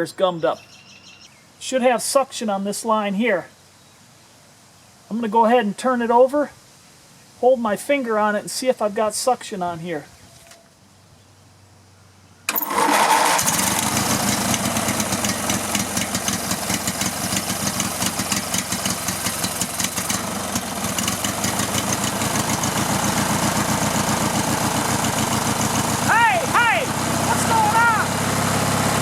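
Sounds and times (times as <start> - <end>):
riding lawn mower engine running: 12.5 - 29.0.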